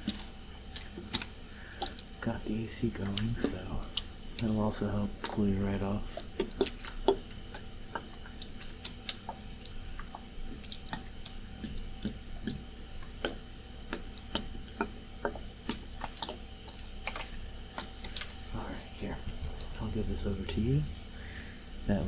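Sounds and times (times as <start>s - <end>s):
air conditioner hum: 0.0s - 22.0s.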